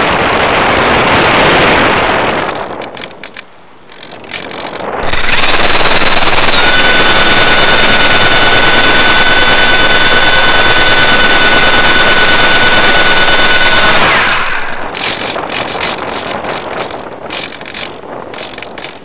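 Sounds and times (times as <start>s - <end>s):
model motor and propeller whining: 4.0s - 19.0s.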